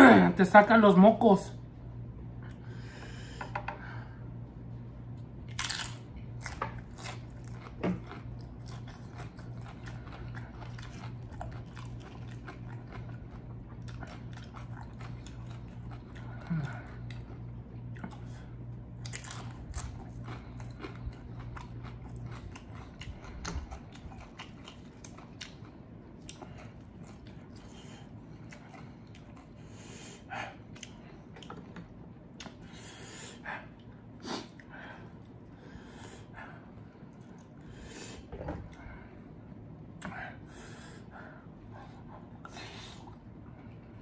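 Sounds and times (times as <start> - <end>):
steady low hum: 0.0 - 44.0
chewing and biting food: 5.2 - 29.6, 30.2 - 32.6.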